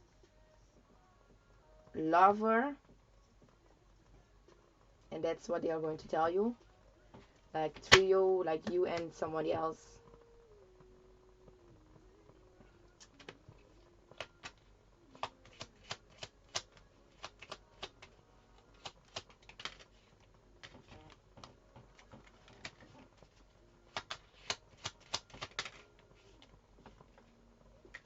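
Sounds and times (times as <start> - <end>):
cards being shuffled: 14.2 - 27.1.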